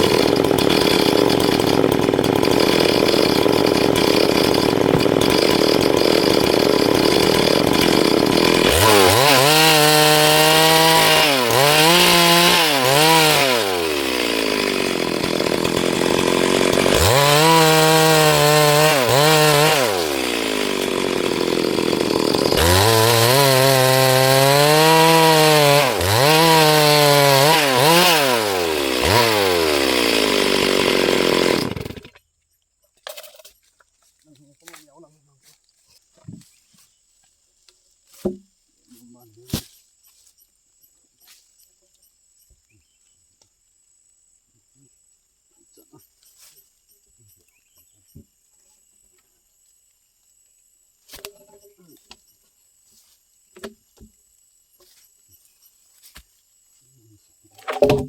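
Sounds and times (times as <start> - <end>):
chainsaw cutting log: 0.0 - 32.2, 38.1 - 39.9, 53.5 - 55.0, 57.6 - 58.0
chainsaw revving: 0.0 - 32.2.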